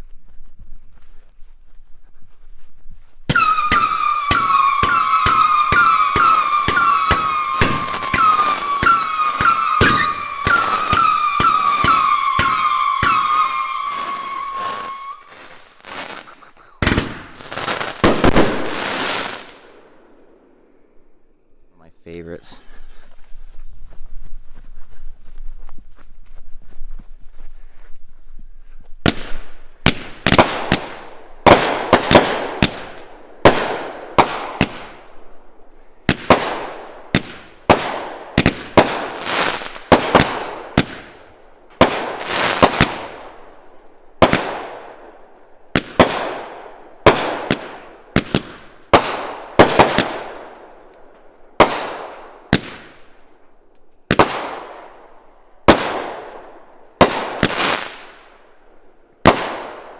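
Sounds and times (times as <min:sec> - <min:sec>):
fireworks banging: 0:03.3 - 0:19.7, 0:29.0 - 0:35.2, 0:36.1 - 0:43.4, 0:44.2 - 0:45.0, 0:45.7 - 0:50.7, 0:51.6 - 0:53.1, 0:54.1 - 0:54.9, 0:55.7 - 0:58.3.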